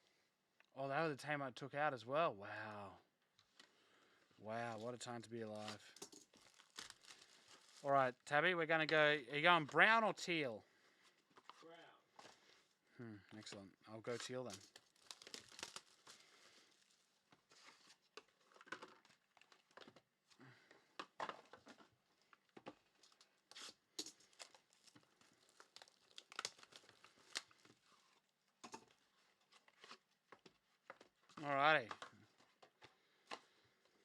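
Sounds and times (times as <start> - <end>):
wrappers crinkling and tearing: 4.6 - 8.0, 14.1 - 20.0, 22.9 - 32.6.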